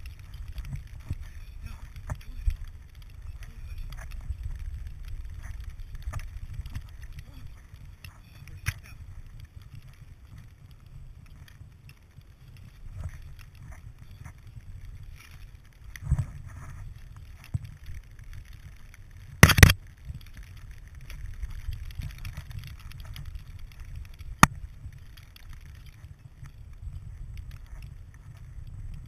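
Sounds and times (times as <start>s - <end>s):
muffled rumbling and rustling: 0.0s - 29.0s
sharp click: 19.4s - 19.8s.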